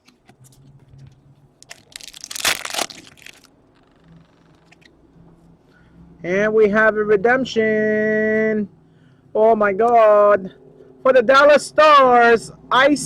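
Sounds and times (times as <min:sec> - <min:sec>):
wrapper crinkling: 0:01.6 - 0:04.0.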